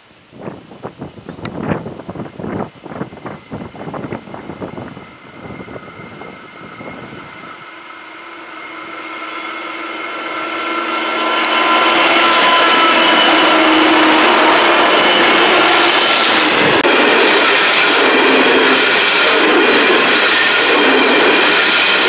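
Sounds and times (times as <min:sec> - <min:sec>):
wind gusts on microphone: 0:00.0 - 0:07.8, 0:11.4 - 0:22.0
diesel locomotives engine whine: 0:00.0 - 0:22.0.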